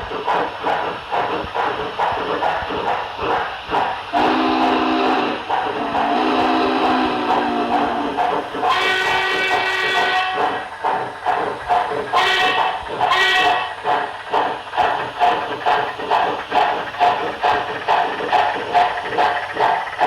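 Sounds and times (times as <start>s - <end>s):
model train steam whistle: 4.1s - 10.6s, 12.2s - 13.8s.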